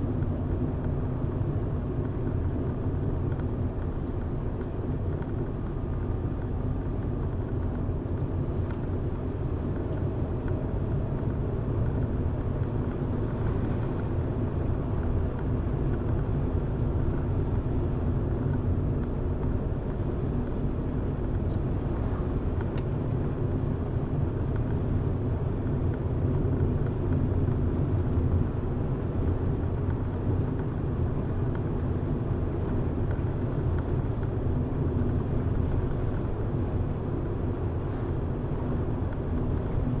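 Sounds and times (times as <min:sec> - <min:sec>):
car engine and tyres rumbling: 0:00.0 - 0:40.0.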